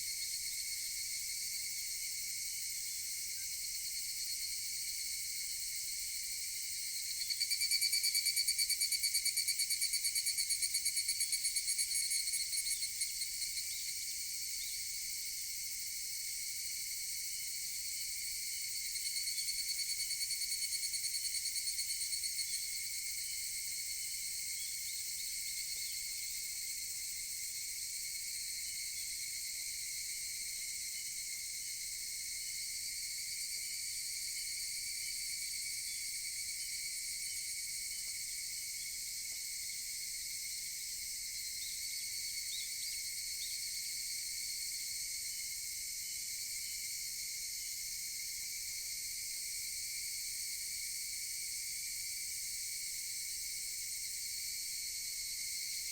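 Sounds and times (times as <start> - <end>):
high-pitched insect chorus: 0.0 - 55.9
cicadas calling: 42.4 - 43.6.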